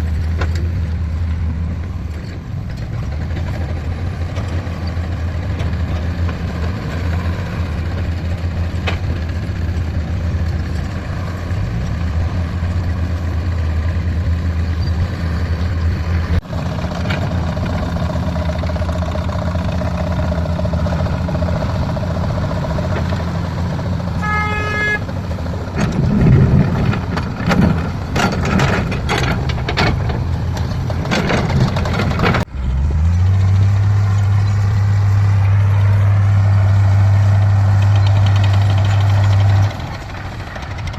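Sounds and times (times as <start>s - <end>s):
heavy diesel engines running: 0.0s - 40.9s
horn toot: 24.2s - 25.1s
metallic clanks and knocks: 25.6s - 32.5s.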